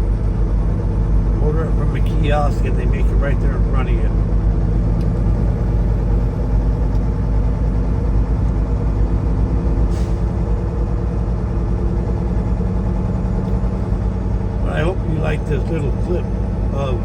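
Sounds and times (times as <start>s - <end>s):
truck diesel engine running: 0.0s - 17.0s.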